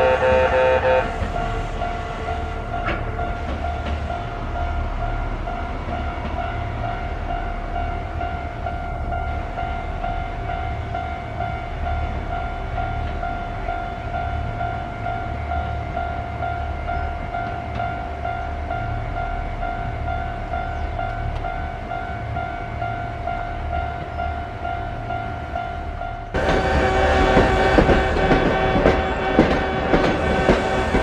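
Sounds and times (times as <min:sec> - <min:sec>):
train horn melody: 0:00.0 - 0:05.2, 0:22.4 - 0:31.0
train wheels rumbling: 0:00.0 - 0:31.0.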